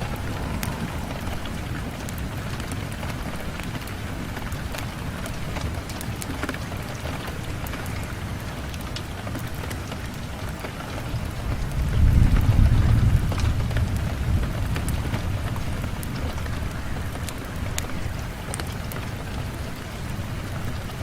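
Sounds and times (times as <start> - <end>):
low rumble: 0.0 - 3.8
rain on a window: 0.0 - 21.0.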